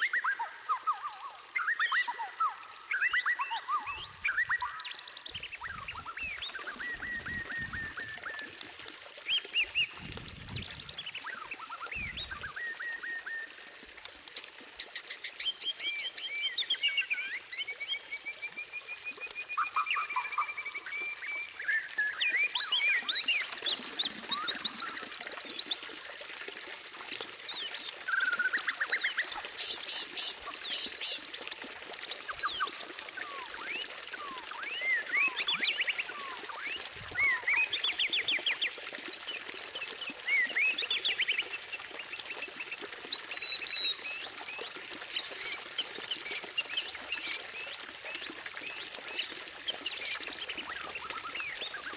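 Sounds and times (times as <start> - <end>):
bird singing whistles: 5.7 - 8.5, 32.4 - 37.7, 43.1 - 44.2.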